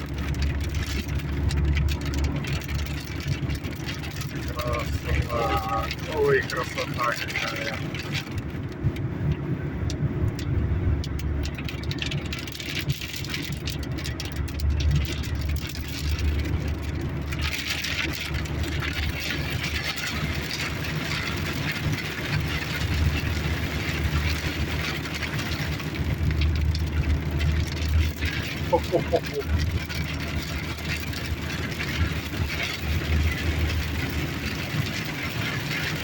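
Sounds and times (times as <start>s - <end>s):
car engine idling: 0.0s - 36.0s
rain on car roof: 0.0s - 36.0s.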